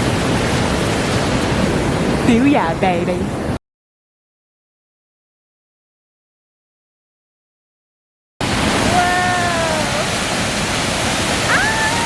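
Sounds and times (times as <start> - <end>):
waterfall rushing: 8.4 - 12.0
voice making drawn-out sounds: 8.8 - 10.2, 11.5 - 12.0.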